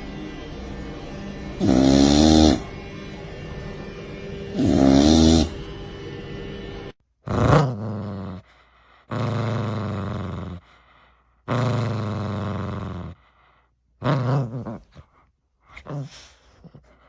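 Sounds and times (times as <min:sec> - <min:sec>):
steady low sound: 0:00.0 - 0:01.7, 0:02.6 - 0:04.6
dog growling: 0:01.6 - 0:02.7, 0:04.5 - 0:05.6, 0:07.2 - 0:17.0.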